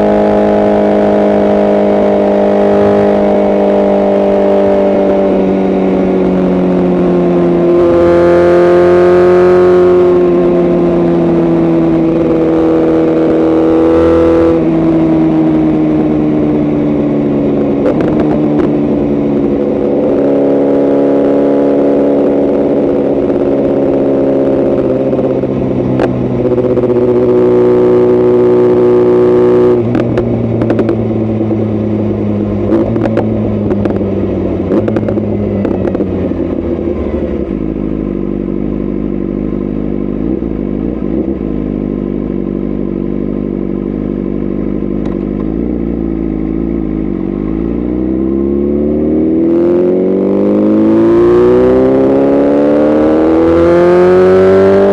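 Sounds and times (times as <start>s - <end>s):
motorcycle engine under throttle: 0.0s - 54.9s
exhaust crackling and popping: 16.6s - 20.2s, 24.7s - 27.5s, 29.7s - 37.8s, 44.9s - 45.6s.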